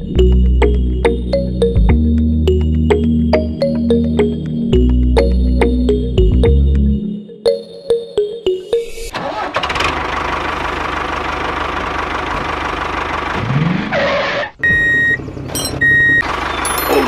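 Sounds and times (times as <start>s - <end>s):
tractor engine rumbling: 9.0s - 17.0s.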